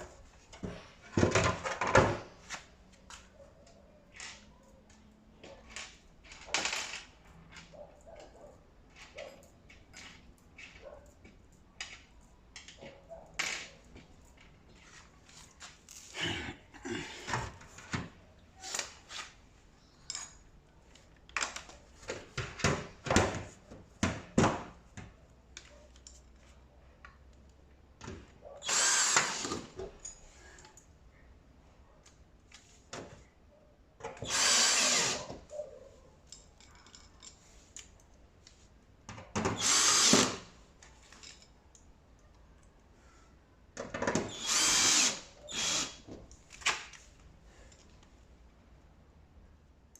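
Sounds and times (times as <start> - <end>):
power drill bursts: 28.6 - 29.8, 34.2 - 35.3, 39.5 - 40.5, 44.2 - 46.0.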